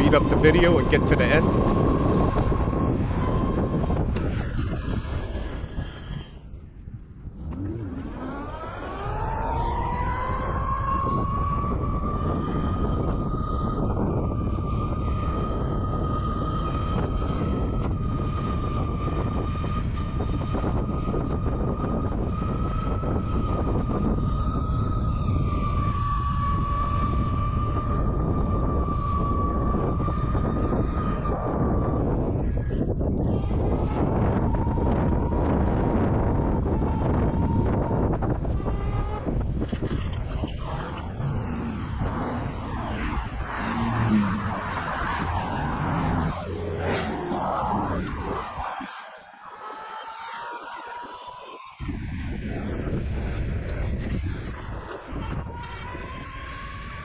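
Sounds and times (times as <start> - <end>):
wind and road rumble: 0.0 - 49.4, 51.8 - 57.0
road rumble: 40.2 - 48.8.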